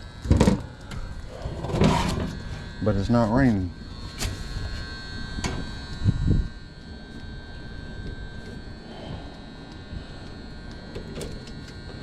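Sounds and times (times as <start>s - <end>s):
electrical relay buzz: 0.0s - 12.0s.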